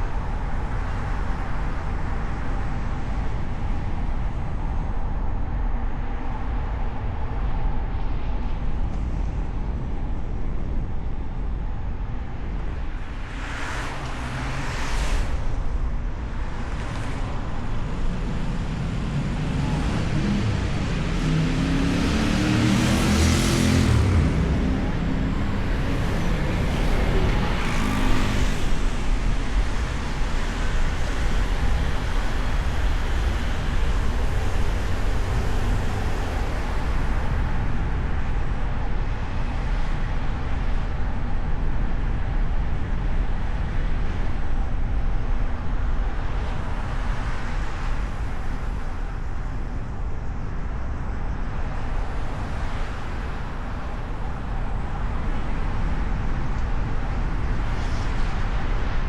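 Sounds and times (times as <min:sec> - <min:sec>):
car road and engine noise: 0:00.0 - 0:59.0
surrounding traffic: 0:00.0 - 0:59.0.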